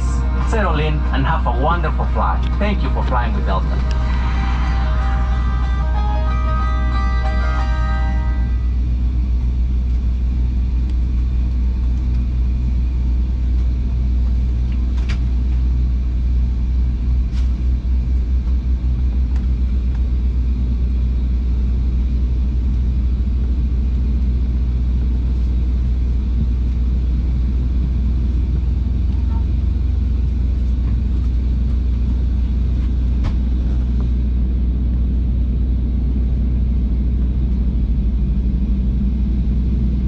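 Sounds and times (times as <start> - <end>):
jet cabin engine rumble: 0.0 - 40.0.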